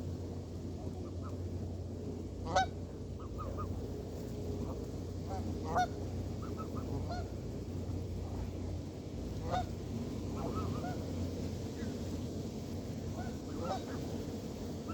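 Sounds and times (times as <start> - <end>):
geese honking: 2.4 - 3.8, 4.6 - 8.5, 9.4 - 11.2, 13.1 - 14.2.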